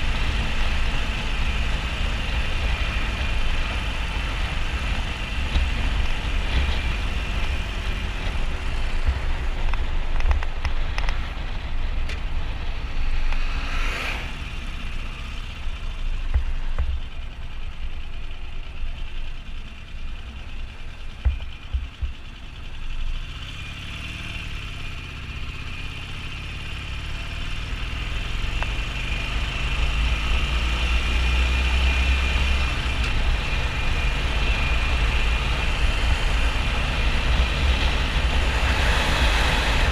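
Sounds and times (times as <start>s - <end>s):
motorcycle engine rumble: 0.0s - 39.9s
wind on microphone: 33.2s - 39.9s.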